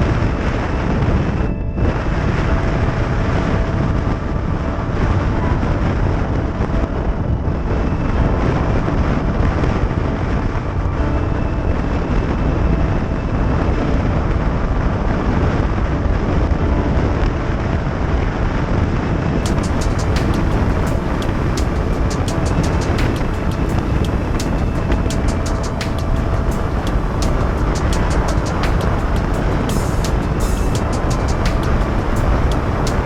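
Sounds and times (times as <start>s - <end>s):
wind noise on microphone: 0.0s - 33.0s
motorcycle running: 19.4s - 33.0s.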